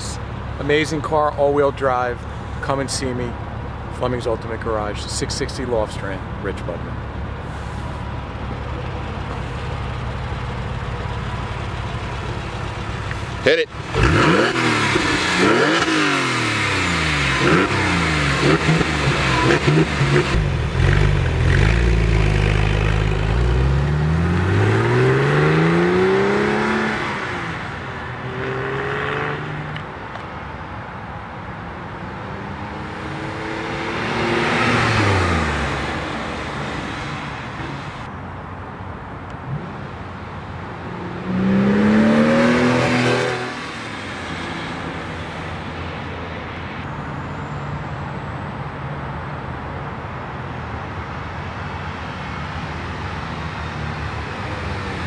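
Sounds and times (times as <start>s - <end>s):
car engine accelerating: 7.4s - 29.8s, 32.3s - 38.1s, 40.9s - 45.9s.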